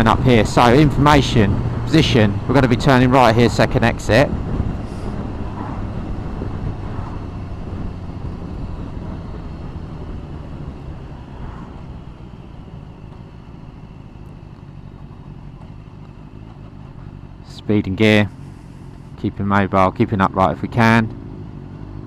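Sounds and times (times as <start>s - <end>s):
motorcycle engine running: 0.0s - 22.0s
wind and road noise: 0.0s - 22.0s.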